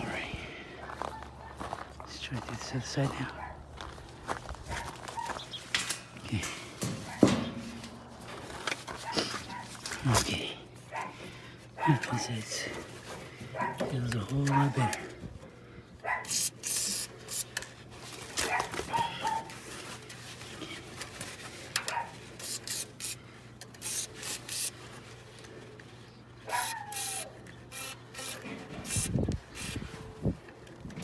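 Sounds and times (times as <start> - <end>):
hands rubbing and scraping metal: 4.7 - 10.4.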